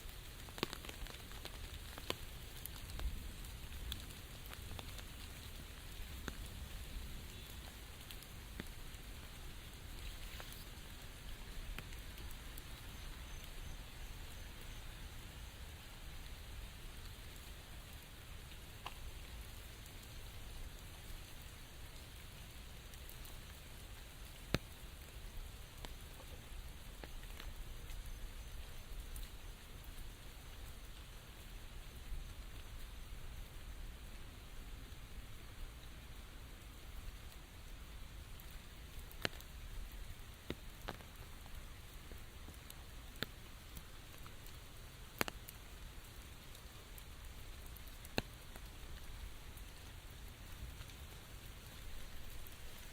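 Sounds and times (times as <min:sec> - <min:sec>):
raindrops tapping close by: 0:00.0 - 0:52.9
steady rain falling: 0:00.0 - 0:52.9.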